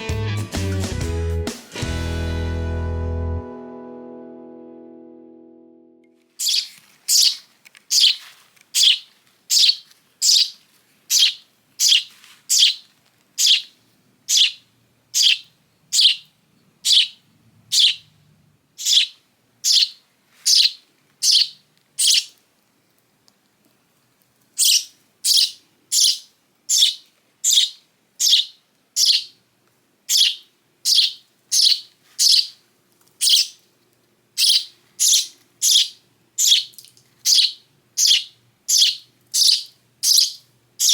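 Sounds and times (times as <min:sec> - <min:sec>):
young sparrow chirping: 0:06.4 - 0:18.1, 0:18.8 - 0:22.4, 0:24.6 - 0:29.4, 0:30.1 - 0:32.6, 0:33.2 - 0:33.6, 0:34.4 - 0:40.9.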